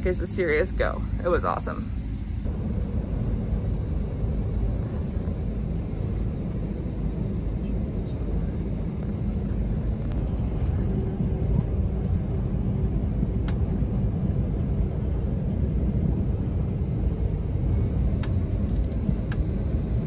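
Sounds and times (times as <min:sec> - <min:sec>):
train wheels rumbling on track: 0:04.7 - 0:20.0.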